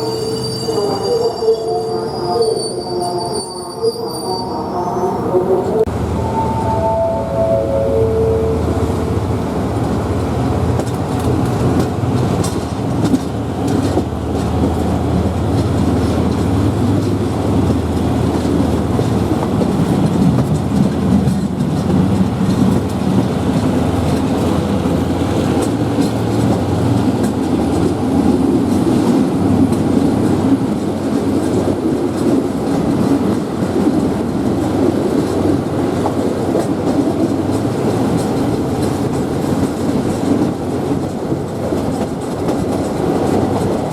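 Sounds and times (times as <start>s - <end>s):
train rumbling: 0.0s - 43.9s
wheels clicking over rail joints: 9.6s - 43.9s.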